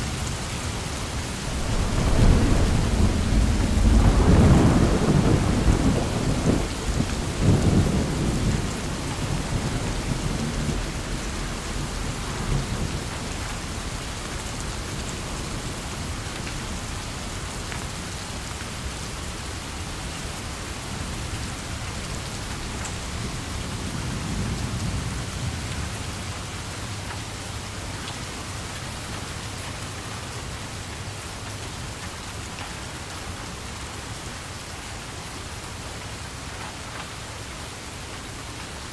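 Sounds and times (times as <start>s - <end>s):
steady rain: 0.0s - 38.9s
thunder rumbling: 1.2s - 16.9s.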